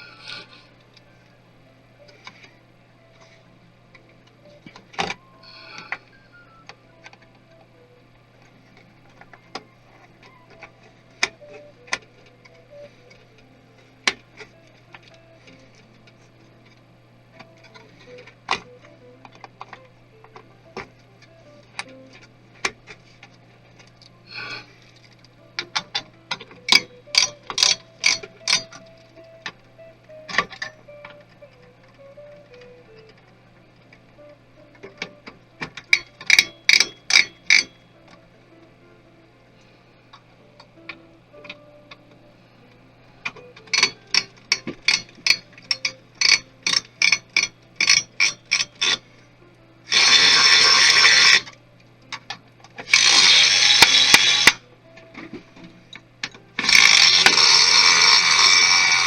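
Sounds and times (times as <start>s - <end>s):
steady low hum: 0.0s - 59.0s
clicks of parts and tools: 17.4s - 29.6s, 30.3s - 32.0s, 34.7s - 38.2s, 43.2s - 49.1s, 49.9s - 59.0s.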